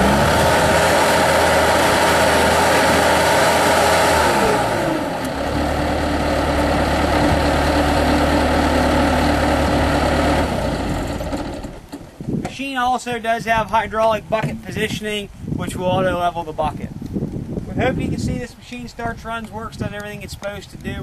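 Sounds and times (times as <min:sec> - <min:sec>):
diesel engine running at high revs: 0:00.0 - 0:12.0.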